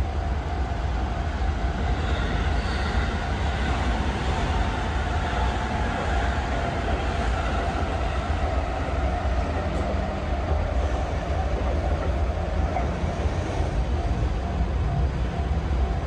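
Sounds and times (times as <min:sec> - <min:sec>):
freight train rumbling: 0:00.0 - 0:16.0.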